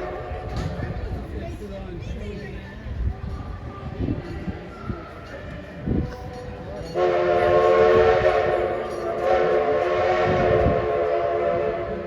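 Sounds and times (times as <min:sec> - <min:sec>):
steam locomotive whistle: 0:07.0 - 0:12.0.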